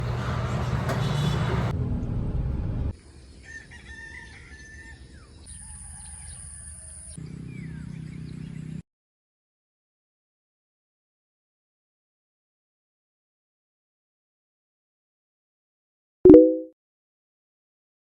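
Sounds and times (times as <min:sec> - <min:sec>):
rooster crowing: 0:03.4 - 0:07.1.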